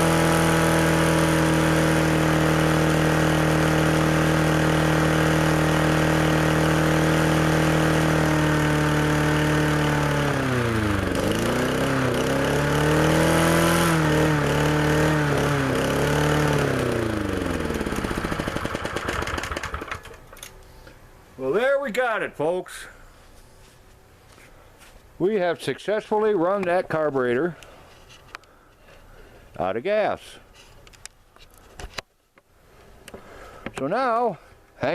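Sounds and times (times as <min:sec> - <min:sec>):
lawnmower engine sputtering: 0:00.0 - 0:20.4.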